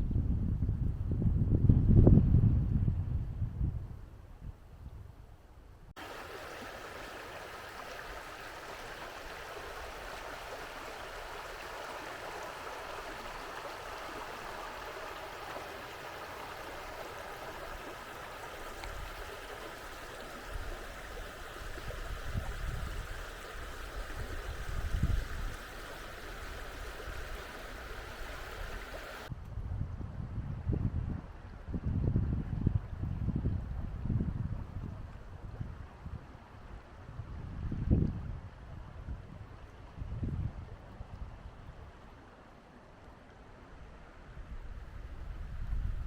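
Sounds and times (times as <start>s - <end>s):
wind gusts on microphone: 0.0s - 42.1s, 43.8s - 46.0s
river water flowing: 6.0s - 29.3s, 40.7s - 45.4s.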